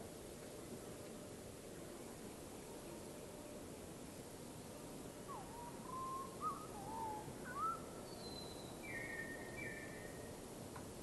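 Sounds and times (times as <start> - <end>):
bird whistling gliding notes: 5.3 - 10.2.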